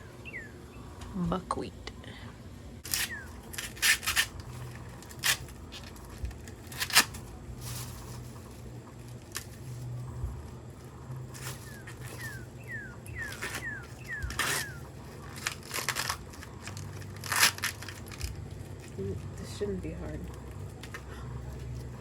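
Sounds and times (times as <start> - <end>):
bird chirping: 0.0 - 1.2, 2.9 - 3.5, 11.1 - 15.3.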